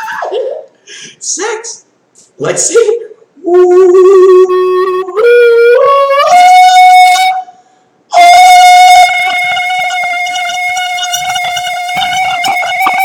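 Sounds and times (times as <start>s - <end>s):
person singing long notes: 3.4s - 13.0s.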